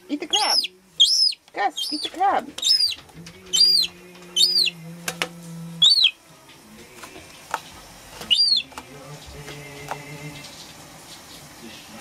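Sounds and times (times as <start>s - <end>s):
gull chick calling: 0.3s - 4.8s, 5.8s - 6.2s, 8.3s - 8.7s.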